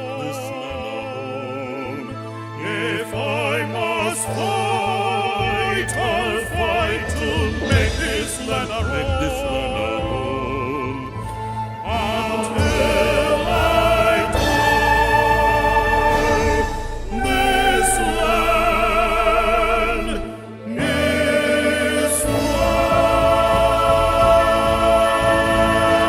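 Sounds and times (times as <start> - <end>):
singers holding notes with vibrato: 0.0 - 26.0
sustained instrumental chord: 12.3 - 26.0.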